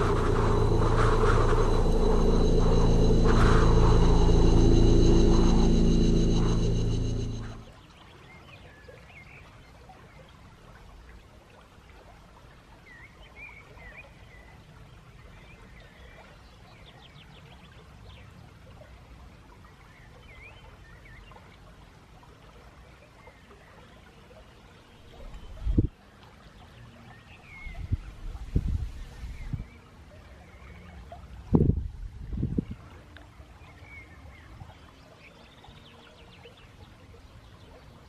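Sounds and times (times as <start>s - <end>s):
low rushing noise: 0.0s - 7.7s.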